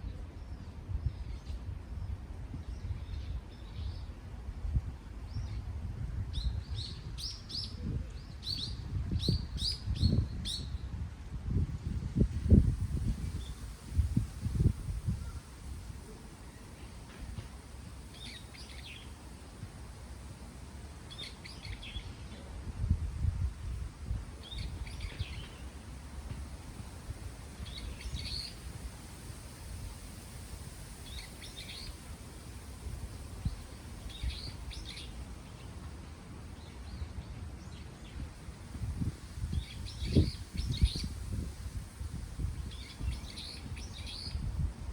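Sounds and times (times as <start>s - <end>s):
wind gusts on microphone: 0.0s - 44.9s
small songbird chirping: 12.5s - 38.4s, 39.0s - 44.6s
songbird chirping: 13.1s - 22.6s, 24.4s - 29.4s.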